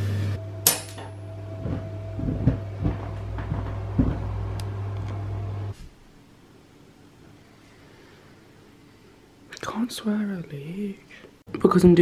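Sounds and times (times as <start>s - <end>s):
steady low hum: 0.0s - 9.6s
knocks and clunks: 1.6s - 4.5s.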